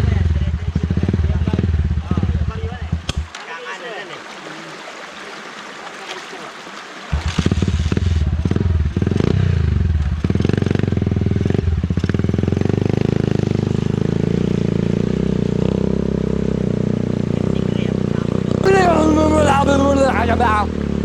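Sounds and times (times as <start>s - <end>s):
small motorcycle engine revving: 7.1s - 21.0s.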